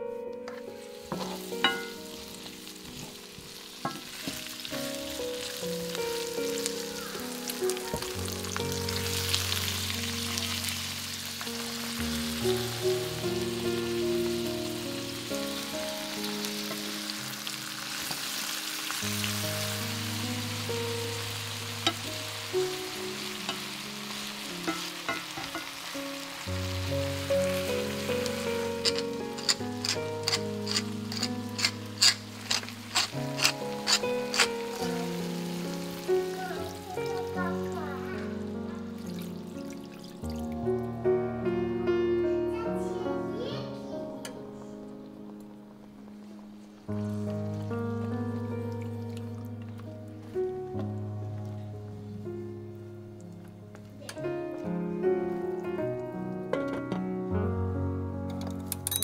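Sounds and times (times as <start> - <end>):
music with slow chords: 0.0 - 59.0
food sizzling in a pan: 0.5 - 40.6.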